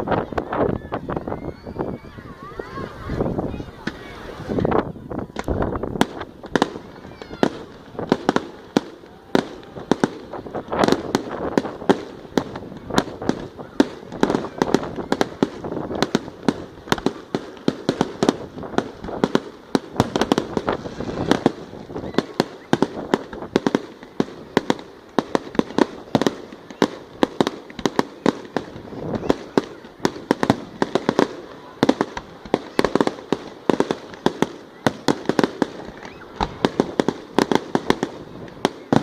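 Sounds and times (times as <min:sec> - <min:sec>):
fireworks banging: 0:00.0 - 0:39.0
fireworks crackling: 0:00.0 - 0:39.0.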